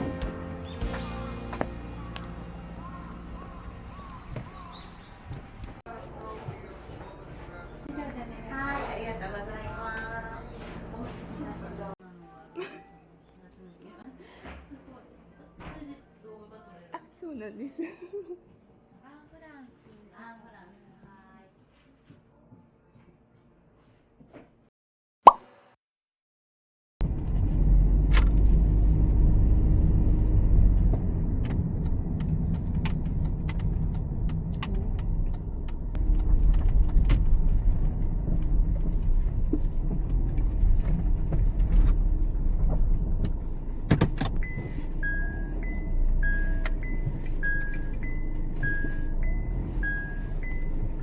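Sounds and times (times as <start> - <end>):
car road rumble: 27.0 - 51.0.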